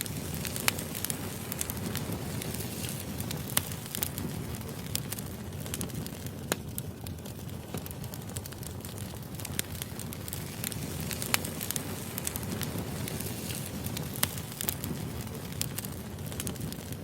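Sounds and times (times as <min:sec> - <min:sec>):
firewood burning and crackling: 0:00.0 - 0:17.0.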